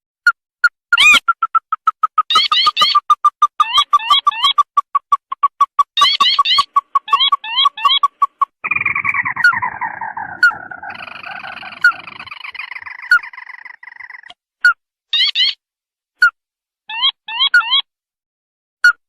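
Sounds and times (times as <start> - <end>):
crake chattering calls: 1.0 - 14.3
sharp rising bird call notes: 6.2 - 14.3.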